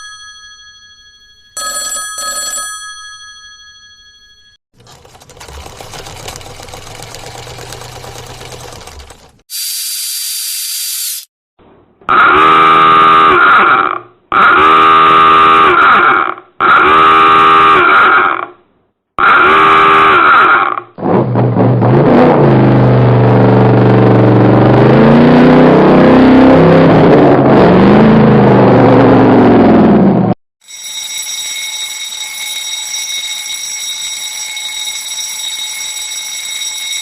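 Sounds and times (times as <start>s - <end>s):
rapid mechanical clatter: 4.8s - 9.4s
horn blasts: 12.1s - 13.5s, 16.8s - 17.9s
ringing tone: 30.6s - 37.0s.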